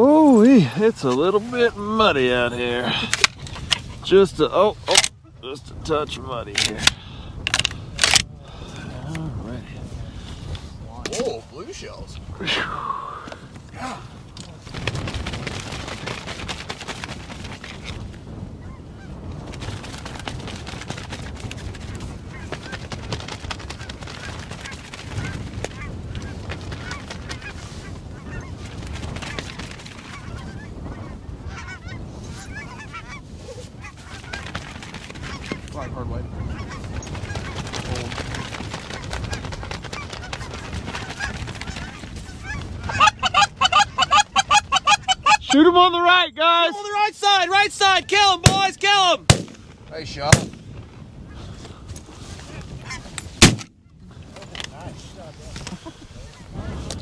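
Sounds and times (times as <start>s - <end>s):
wind on microphone: 0.0s - 46.0s, 47.7s - 57.0s
geese honking: 30.0s - 34.5s, 38.4s - 45.7s.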